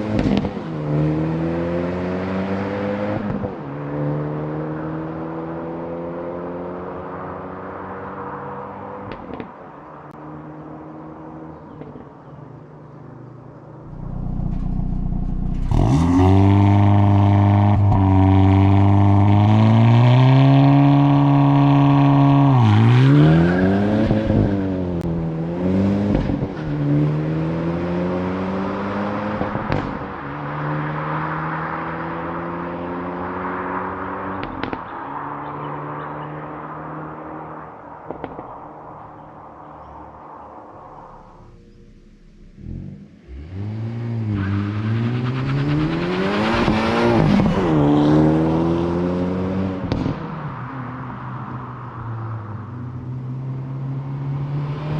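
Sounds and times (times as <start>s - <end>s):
car engine revving: 13.8s - 34.8s, 35.5s - 54.9s.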